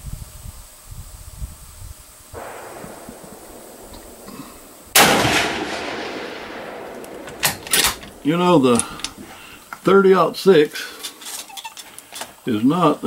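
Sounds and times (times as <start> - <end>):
rifle shot with echo: 2.4 - 9.3.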